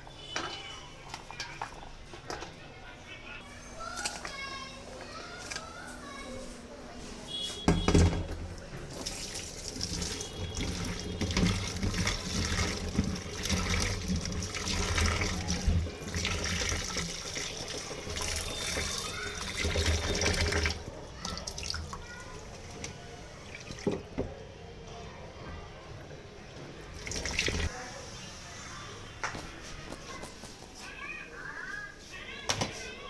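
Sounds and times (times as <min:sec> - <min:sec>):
tap water splashing into sink: 0:08.9 - 0:24.3, 0:27.0 - 0:27.7.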